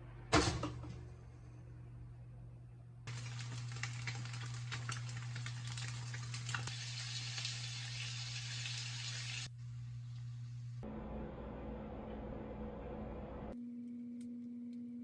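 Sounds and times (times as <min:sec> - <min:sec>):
food sizzling in a pan: 0:03.1 - 0:09.5
steady low hum: 0:09.5 - 0:15.0.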